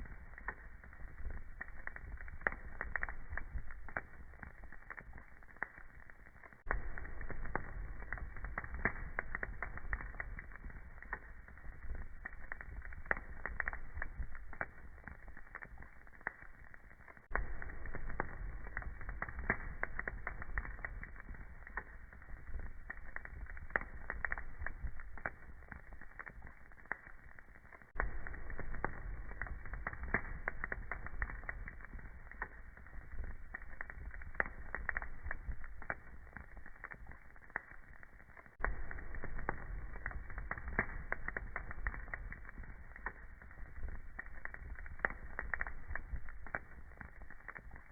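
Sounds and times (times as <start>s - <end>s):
low fire rumble: 0.0s - 47.9s
wood fire crackling and popping: 0.0s - 47.9s.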